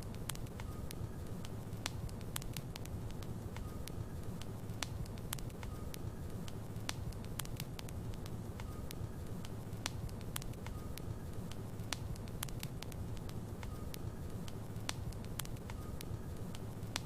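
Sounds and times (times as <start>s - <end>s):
burning logs crackling and popping: 0.0s - 17.0s
low rumble of flames: 0.0s - 17.0s.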